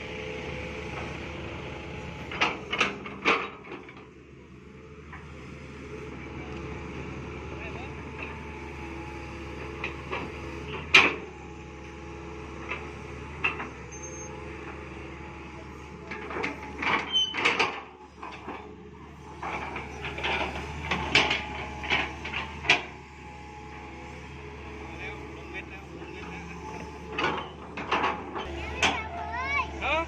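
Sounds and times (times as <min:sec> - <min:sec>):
excavator diesel engine running: 0:00.0 - 0:30.0
clanks and knocks from digging: 0:16.1 - 0:18.7, 0:19.4 - 0:22.9, 0:26.9 - 0:29.0.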